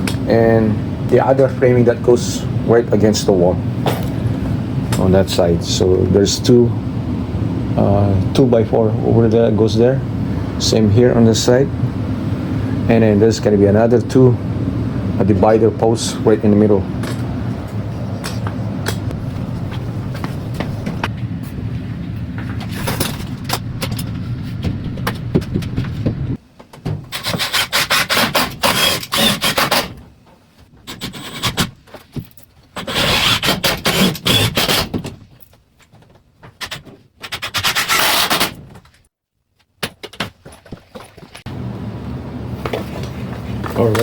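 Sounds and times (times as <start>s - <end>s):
steady low hum: 0.0s - 29.8s, 41.5s - 44.0s
wood rubbing and scraping: 18.3s - 21.7s, 22.4s - 26.4s.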